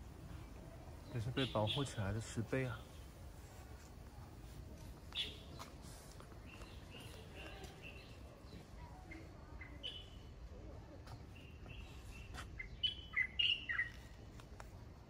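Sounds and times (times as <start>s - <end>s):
small birds chirping: 0.1s - 14.8s.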